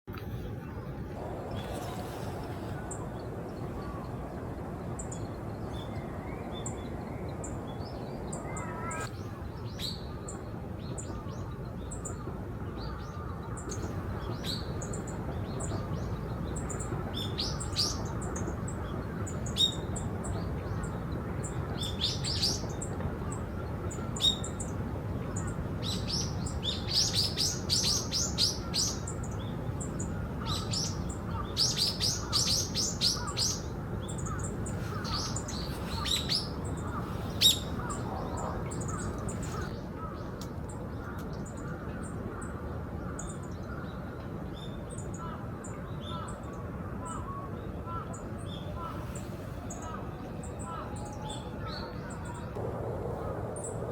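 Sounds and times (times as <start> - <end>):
songbirds chirping: 0.0 - 53.9
low background rumble: 0.1 - 44.7, 45.3 - 53.9
birds rapid chattering: 29.9 - 39.7.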